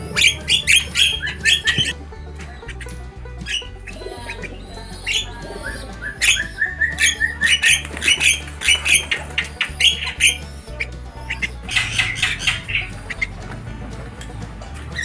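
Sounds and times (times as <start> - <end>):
starlings squawking and chirping: 0.0 - 1.9, 3.9 - 13.3
background music with low beat: 0.0 - 15.0.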